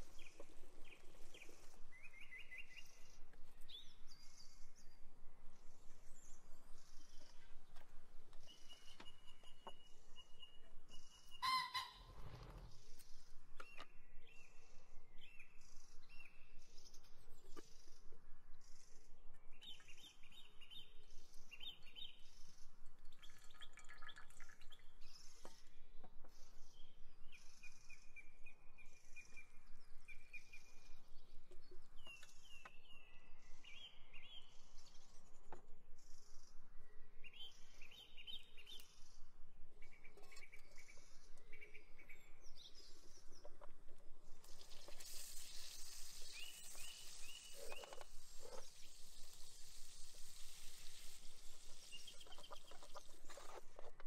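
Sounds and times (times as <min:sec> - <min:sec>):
faint steady hiss: 0:00.0 - 0:54.0
birds chirping: 0:05.8 - 0:14.6, 0:44.6 - 0:49.1, 0:51.4 - 0:54.0
long drawn-out bird call: 0:11.4 - 0:12.2.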